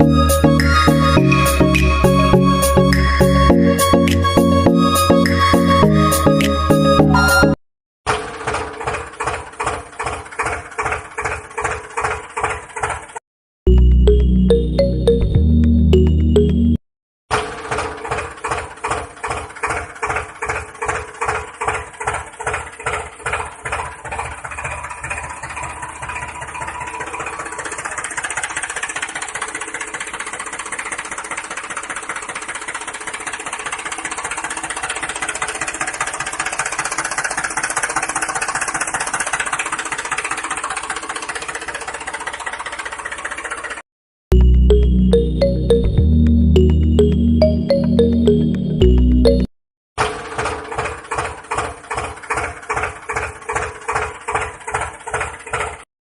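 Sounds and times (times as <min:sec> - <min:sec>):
small water pump motor: 0:08.1 - 0:13.2, 0:17.4 - 0:43.8, 0:50.0 - 0:55.8.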